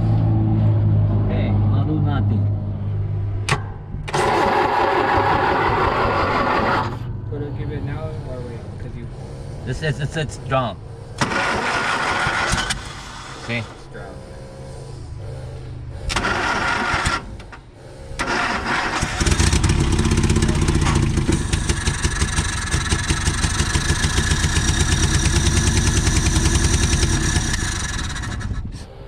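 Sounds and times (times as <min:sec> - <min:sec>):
car engine starter cranking: 0:03.5 - 0:07.0, 0:11.2 - 0:13.9, 0:16.0 - 0:28.7.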